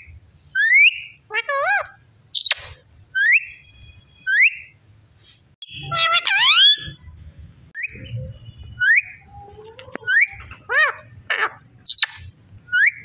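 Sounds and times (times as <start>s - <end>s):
parrot whistling: 2.4s - 4.8s, 5.6s - 7.0s, 10.1s - 13.0s.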